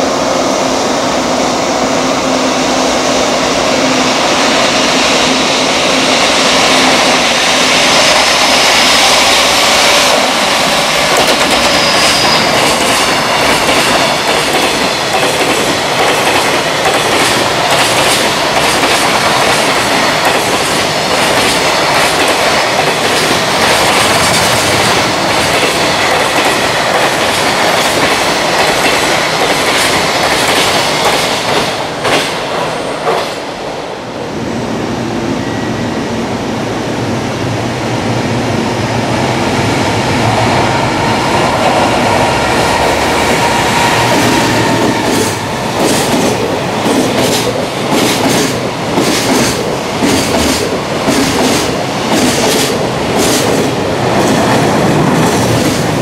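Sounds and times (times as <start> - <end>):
train wheels clattering: 8.0 - 33.4, 42.6 - 56.0.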